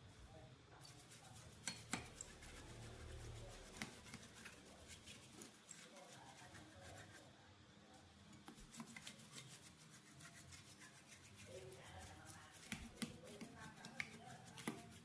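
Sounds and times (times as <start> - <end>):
faint rubbing and scraping: 0.8 - 7.3, 8.5 - 15.0.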